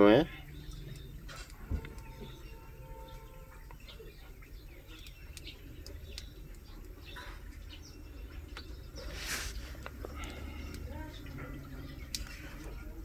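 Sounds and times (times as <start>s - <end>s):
high bird chirps: 0.3s - 9.8s.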